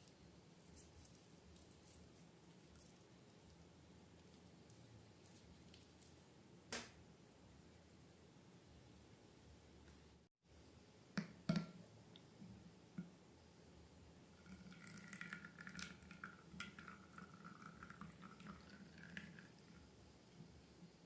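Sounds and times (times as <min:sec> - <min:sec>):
slime squelching and dripping: 0:00.6 - 0:06.3.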